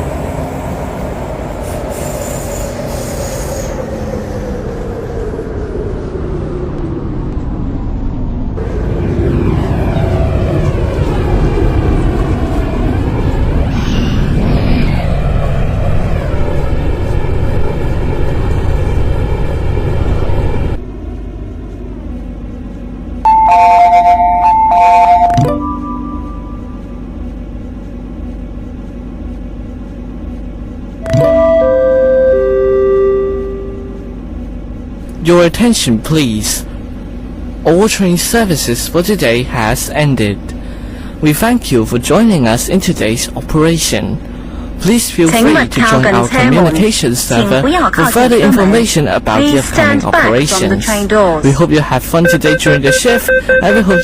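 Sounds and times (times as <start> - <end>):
train running noise in cabin: 0.0 - 54.0
two-note electronic chime: 23.3 - 27.0, 31.0 - 34.0
quiet hum: 25.8 - 54.0
train motor whine falling in pitch: 31.0 - 34.2.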